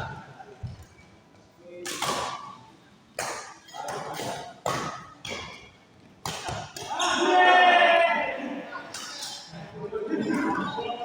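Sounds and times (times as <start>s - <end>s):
racket striking shuttlecock: 1.8s - 2.5s, 3.2s - 7.0s.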